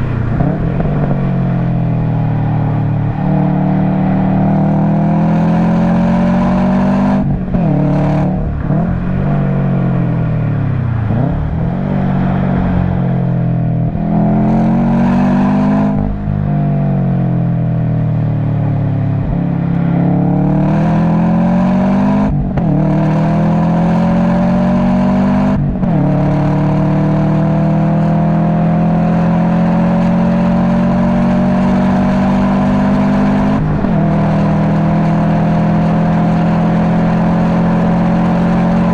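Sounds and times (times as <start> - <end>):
car engine revving hard: 0.0 - 17.4, 19.2 - 38.9.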